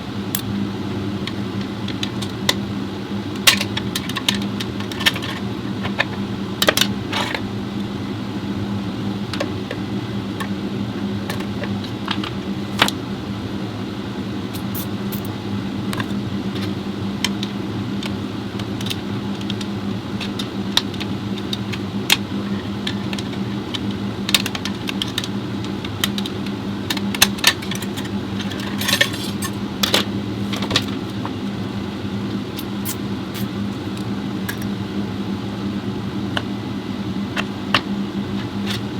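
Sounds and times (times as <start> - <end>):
steady mechanical hum: 0.0 - 38.9
metal parts and tools clinking: 27.4 - 30.0.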